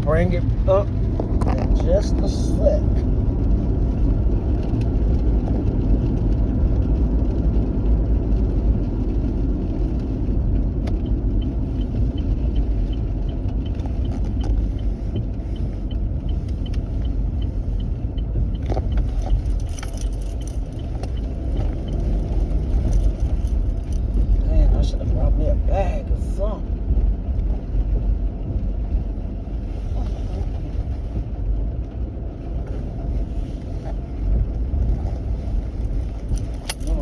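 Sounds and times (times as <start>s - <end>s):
car rumble from inside cabin: 0.0s - 37.0s
light regular ticking: 10.2s - 25.7s, 34.2s - 37.0s.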